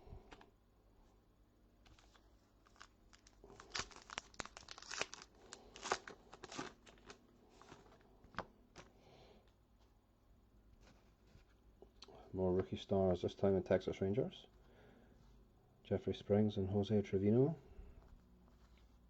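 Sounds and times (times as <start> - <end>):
cards rustling: 1.8 - 8.9
foil wrapper crinkling: 1.8 - 8.9.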